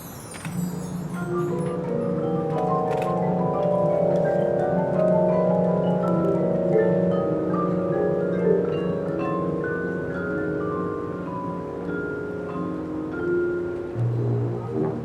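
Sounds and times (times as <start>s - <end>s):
mallet percussion short notes: 0.0s - 15.0s
marching band playing: 14.0s - 15.0s.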